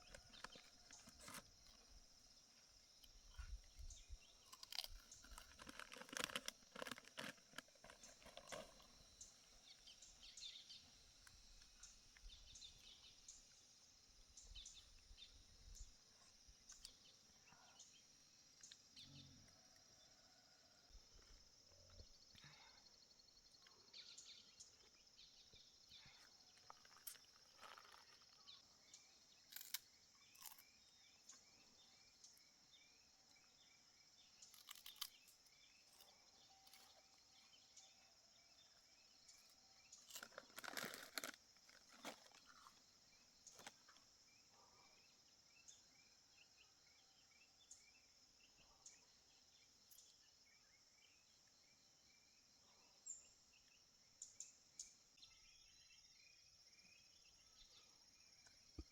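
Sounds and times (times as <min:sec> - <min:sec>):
small rustles: 0:40.0 - 0:42.9.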